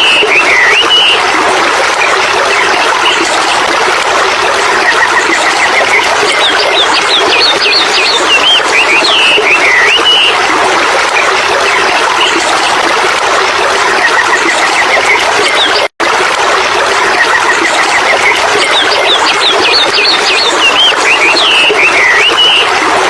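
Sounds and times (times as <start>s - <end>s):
running water rushing: 0.0s - 23.0s
birds singing: 5.4s - 10.4s, 18.1s - 22.7s.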